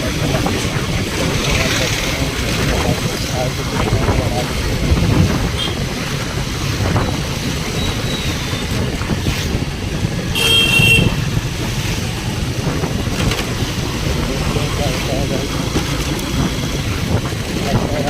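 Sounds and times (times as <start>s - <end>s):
road traffic rumble: 0.0s - 18.0s
vehicle horn honking: 5.6s - 5.8s, 10.3s - 11.3s.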